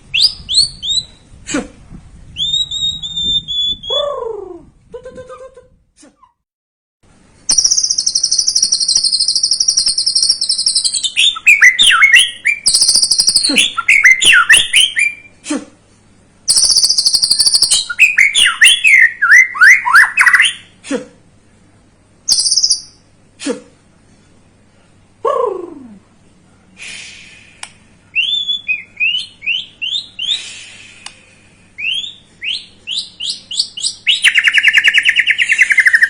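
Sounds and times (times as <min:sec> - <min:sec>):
songbird singing trills: 0:00.0 - 0:01.4, 0:02.3 - 0:04.2, 0:07.5 - 0:15.3, 0:16.5 - 0:20.7, 0:22.3 - 0:23.0, 0:28.1 - 0:30.5, 0:31.8 - 0:36.0.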